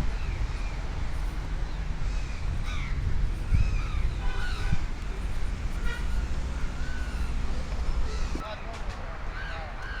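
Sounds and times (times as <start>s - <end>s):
birds calling harshly: 9.3s - 10.0s.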